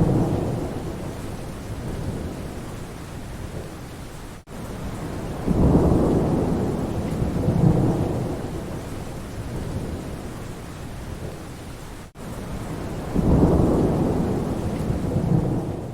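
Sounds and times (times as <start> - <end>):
thunder rolling: 0.0 - 2.5, 5.1 - 10.2, 12.9 - 15.9
rain falling: 0.0 - 15.9.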